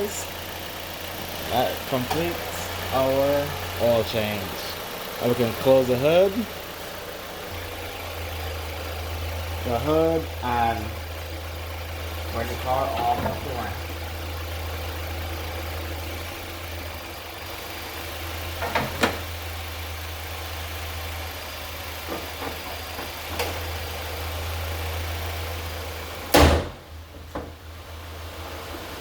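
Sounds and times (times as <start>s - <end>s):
car engine idling: 0.0s - 29.0s
loud slam: 26.3s - 26.9s.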